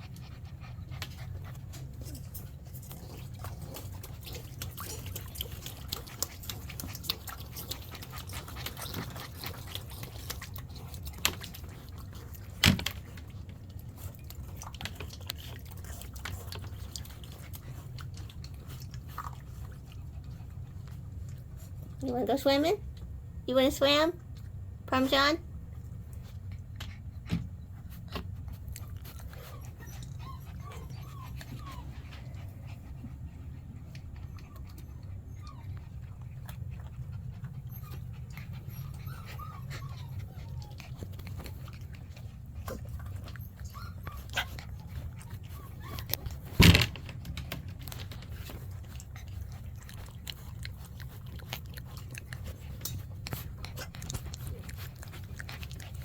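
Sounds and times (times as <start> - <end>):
puppies whimpering and panting: 0.0 - 22.9, 23.6 - 56.0
puppies squeaking: 28.8 - 33.3, 34.0 - 46.8.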